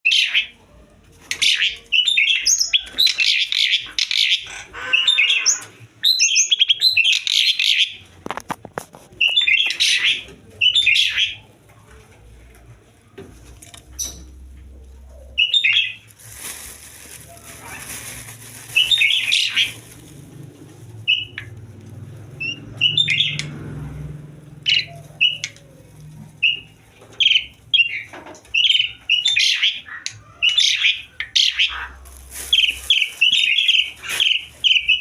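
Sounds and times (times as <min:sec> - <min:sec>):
starling harsh chattering calls: 0:01.4 - 0:08.0, 0:17.4 - 0:20.0, 0:21.0 - 0:21.5, 0:22.4 - 0:23.5, 0:24.6 - 0:25.6, 0:27.2 - 0:35.0.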